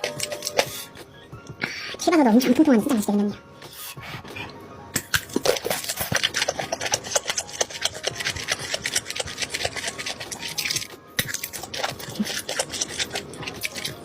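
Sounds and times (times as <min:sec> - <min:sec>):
crunchy chewing of fried chicken: 0:05.1 - 0:14.0.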